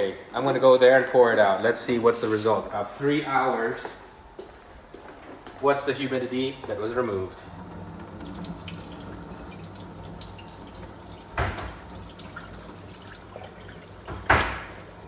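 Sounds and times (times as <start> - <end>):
water pouring into a sink: 7.5 - 15.0
sharp knocks: 11.4 - 11.8, 14.1 - 14.8.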